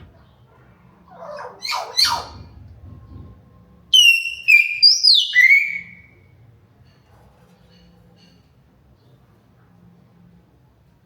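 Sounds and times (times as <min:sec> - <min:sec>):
hill myna calling: 0:01.1 - 0:02.5.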